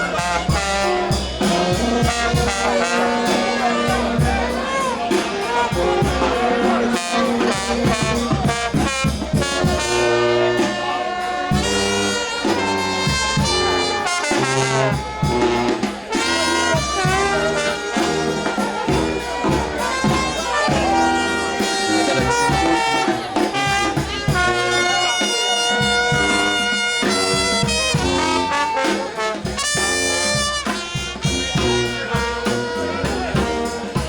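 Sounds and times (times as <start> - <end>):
brass band playing: 0.0 - 34.0
steady drum beat: 0.0 - 34.0.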